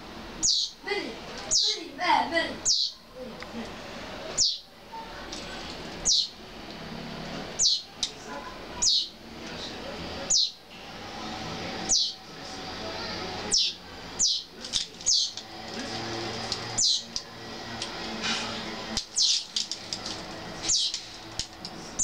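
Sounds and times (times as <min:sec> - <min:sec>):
low background noise: 0:00.0 - 0:22.0
fledglings begging calls: 0:00.4 - 0:00.8, 0:01.5 - 0:01.9, 0:02.6 - 0:03.0, 0:04.3 - 0:04.7, 0:06.0 - 0:06.4, 0:07.5 - 0:07.9, 0:08.8 - 0:09.2, 0:10.3 - 0:10.6, 0:11.8 - 0:12.3, 0:13.4 - 0:18.0, 0:19.0 - 0:19.6, 0:20.5 - 0:21.1.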